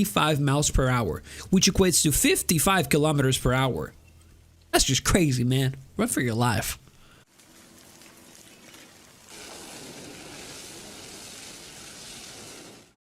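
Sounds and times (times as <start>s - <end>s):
lava sizzling and crackling: 7.2s - 13.0s.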